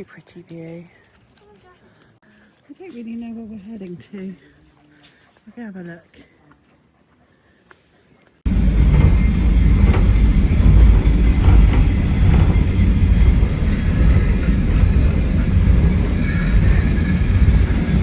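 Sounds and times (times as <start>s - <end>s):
railway car rumbling on track: 8.5s - 18.0s.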